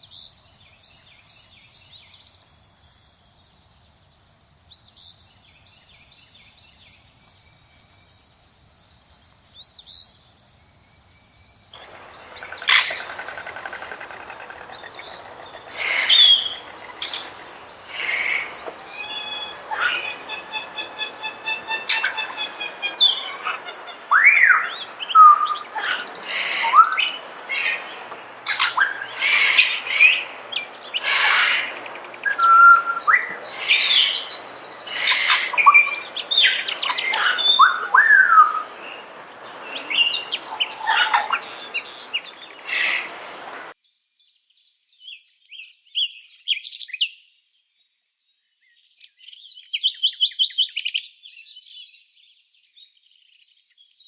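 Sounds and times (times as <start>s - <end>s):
birds chirping and whistling: 4.7s - 43.6s
rapid chattering bird notes: 11.8s - 24.0s, 40.1s - 43.1s.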